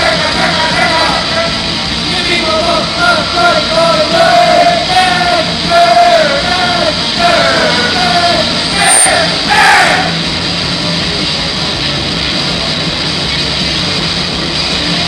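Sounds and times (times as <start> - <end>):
person singing long notes: 0.0 - 9.9.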